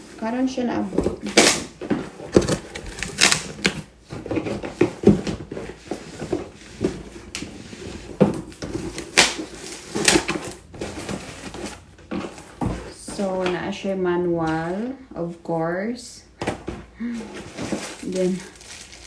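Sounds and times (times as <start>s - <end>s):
cardboard box being opened: 1.0s - 13.2s.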